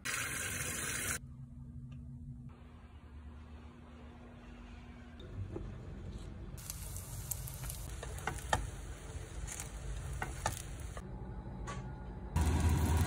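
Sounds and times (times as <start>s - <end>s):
zucchini sizzling in a frying pan: 6.6s - 8.7s.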